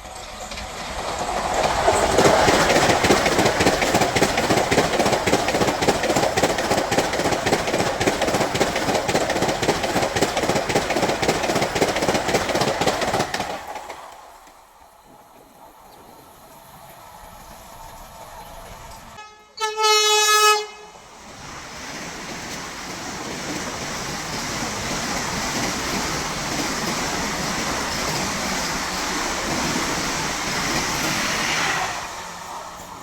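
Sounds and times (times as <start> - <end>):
train rushing past: 0.0 - 33.0
train horn blast: 19.2 - 21.0.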